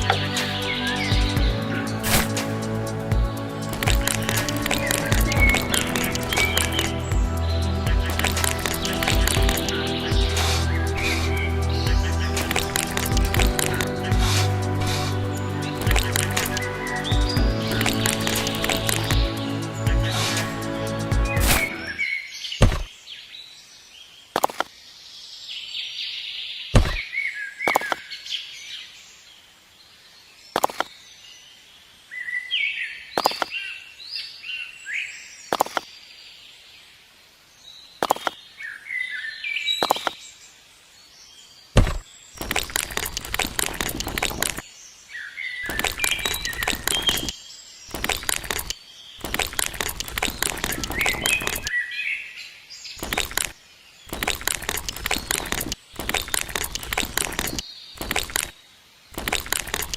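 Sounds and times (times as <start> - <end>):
birds chirping: 0.0 - 23.0, 41.6 - 52.2, 52.8 - 59.9
sharp knock: 22.6 - 22.9, 26.8 - 27.0, 41.8 - 42.0.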